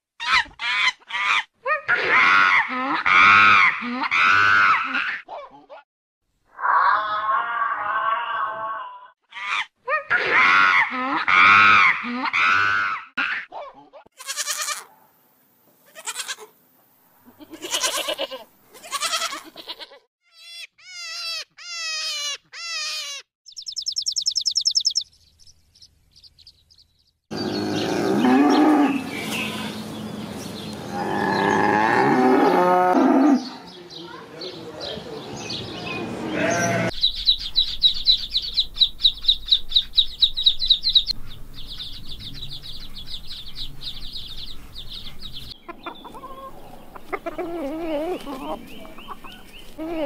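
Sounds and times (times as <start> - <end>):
drawn-out animal cries: 14.2 - 15.0, 15.9 - 16.5, 17.3 - 23.2, 36.2 - 37.0.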